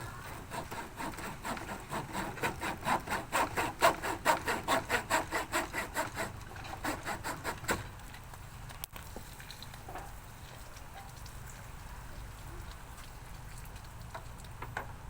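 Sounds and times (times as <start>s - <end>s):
hand saw cutting: 0.0s - 8.0s.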